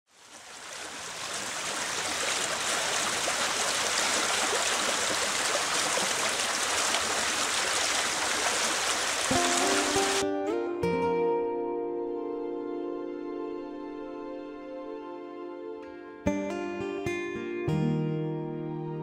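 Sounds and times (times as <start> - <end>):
water rushing: 0.1 - 10.2.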